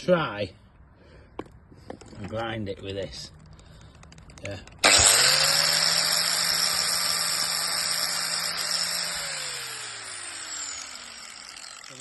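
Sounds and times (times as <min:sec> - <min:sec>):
angle grinder whirring and winding down: 0:04.8 - 0:12.0.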